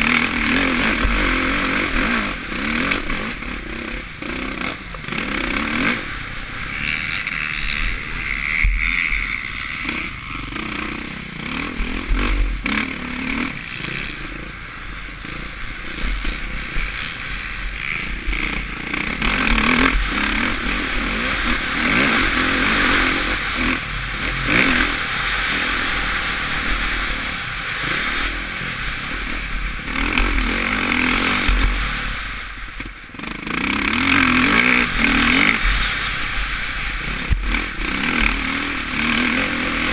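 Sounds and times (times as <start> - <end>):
motocross engine revving: 0.0 - 39.9.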